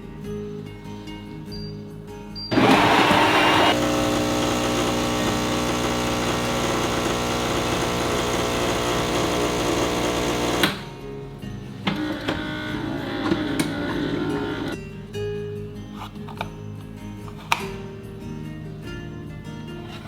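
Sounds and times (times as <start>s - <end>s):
motor switch click: 2.5s - 10.9s
small electric motor running: 2.5s - 10.9s.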